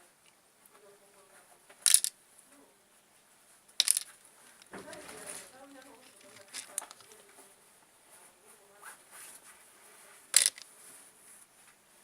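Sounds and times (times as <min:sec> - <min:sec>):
small objects tapping and clicking: 0:01.8 - 0:02.2, 0:03.8 - 0:07.2, 0:10.3 - 0:10.7.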